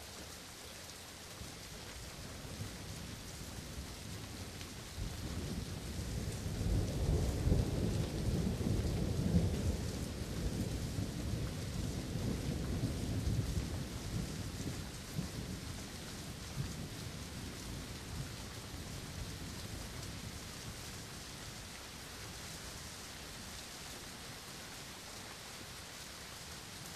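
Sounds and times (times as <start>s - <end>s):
steady rain: 0.0s - 26.9s
low roll of thunder: 4.8s - 21.2s.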